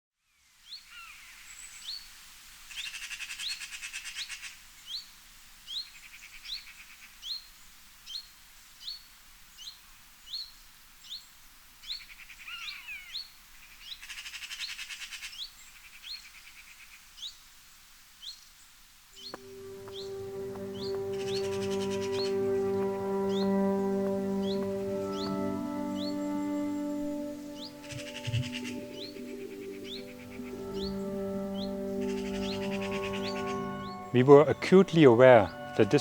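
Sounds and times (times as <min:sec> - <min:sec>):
brief falling bird call: 0:19.2 - 0:36.0
bird short high rising note: 0:19.4 - 0:36.0
rapid rattling bird trill: 0:27.6 - 0:29.2.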